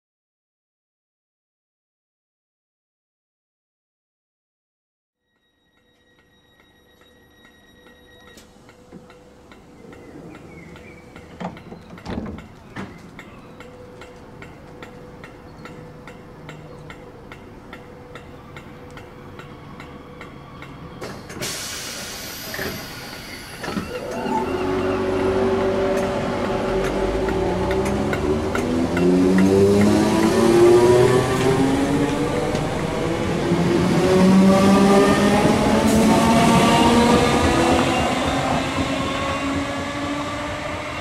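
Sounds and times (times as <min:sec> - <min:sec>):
electric train approaching: 0:05.2 - 0:41.0
rail hiss: 0:21.0 - 0:24.1.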